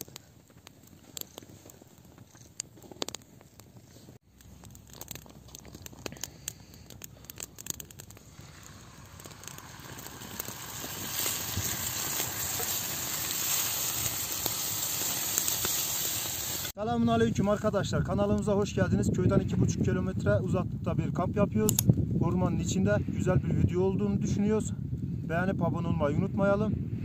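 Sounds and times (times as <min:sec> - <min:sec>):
wood fire crackling: 0:00.0 - 0:16.8
steady hiss: 0:06.3 - 0:16.8.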